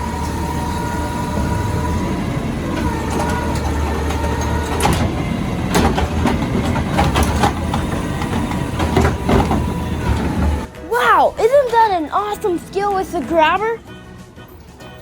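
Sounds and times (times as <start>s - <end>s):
bin clanking and banging: 0.0s - 10.7s
diesel engine whining: 0.0s - 10.8s.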